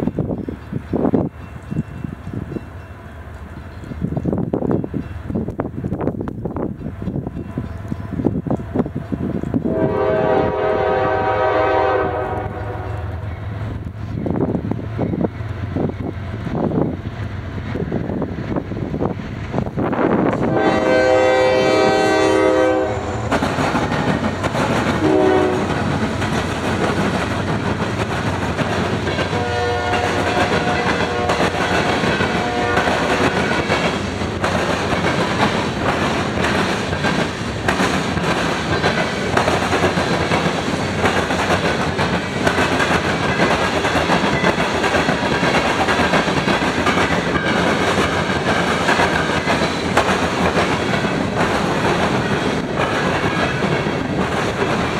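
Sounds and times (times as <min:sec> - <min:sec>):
train rumbling past: 0:00.0 - 0:54.9
freight train horn blasts: 0:09.6 - 0:13.3, 0:20.4 - 0:23.4, 0:25.0 - 0:25.9, 0:29.3 - 0:33.6
wheels clacking over rail joints: 0:21.5 - 0:54.9.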